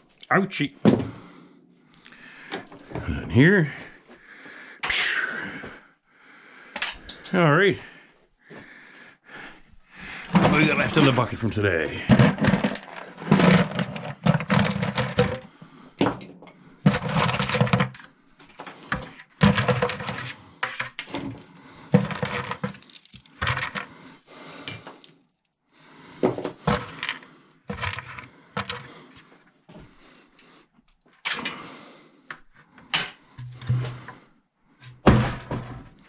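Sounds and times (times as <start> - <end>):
scrap metal clattering in bucket: 10.3 - 16.2, 16.8 - 23.9, 26.2 - 28.9, 33.0 - 34.2, 34.9 - 36.0.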